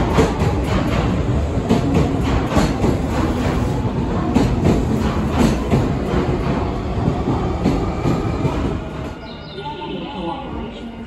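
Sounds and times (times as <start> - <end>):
train wheels clattering over joints: 0.0 - 8.8.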